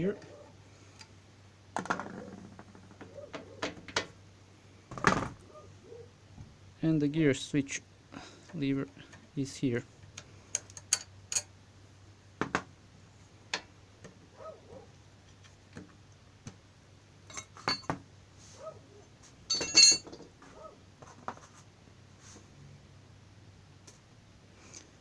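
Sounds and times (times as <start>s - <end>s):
ringing metal clatter: 19.5s - 20.2s.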